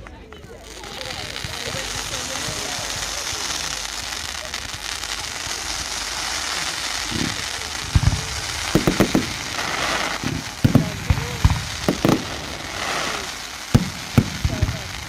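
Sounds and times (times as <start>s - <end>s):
fireworks crackling hiss: 0.0s - 15.0s.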